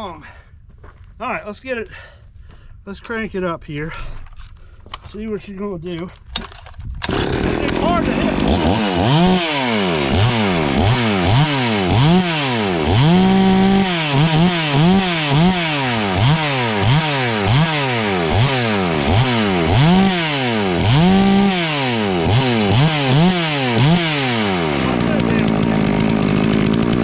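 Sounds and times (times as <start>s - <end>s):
chainsaw engine revving: 7.0s - 27.0s.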